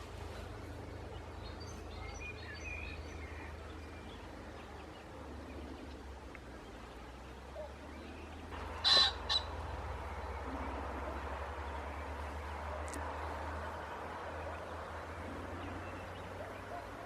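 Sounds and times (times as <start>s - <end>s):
pheasant crowing: 8.6s - 11.8s.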